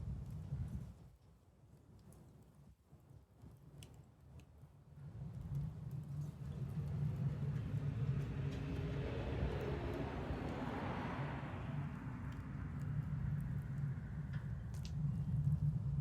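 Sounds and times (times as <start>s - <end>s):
vehicle passing by: 7.2s - 14.4s.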